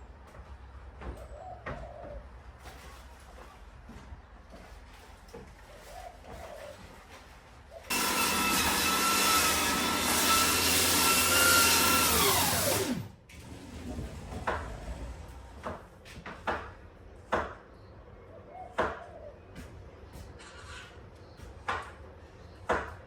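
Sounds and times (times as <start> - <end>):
power sander motor whine: 7.9 - 13.1.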